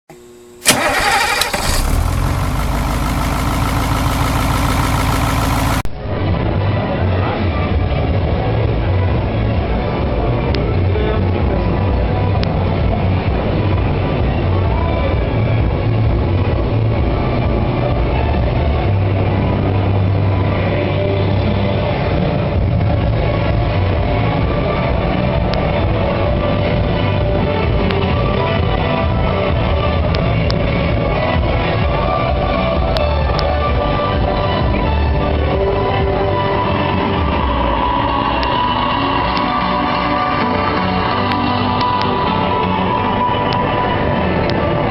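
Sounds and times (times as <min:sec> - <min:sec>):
bus engine starting and idling: 0:00.6 - 0:05.9.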